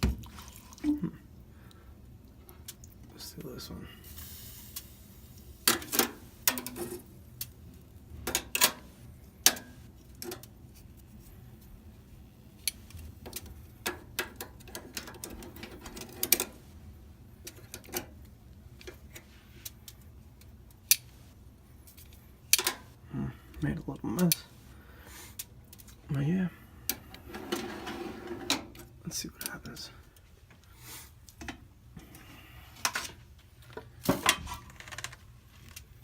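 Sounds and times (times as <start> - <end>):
metal oven trays clattering: 27.1 - 28.8.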